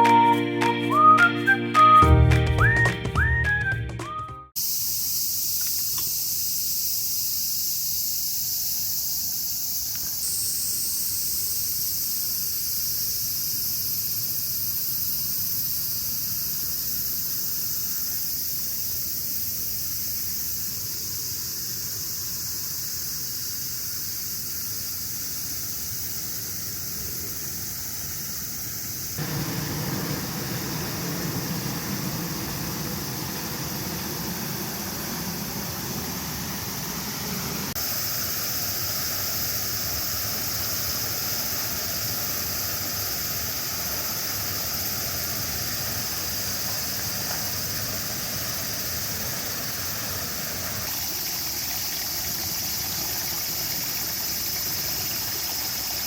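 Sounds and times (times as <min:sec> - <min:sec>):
constant high hiss: 0:04.6 - 0:56.0
low rushing noise: 0:29.2 - 0:37.8.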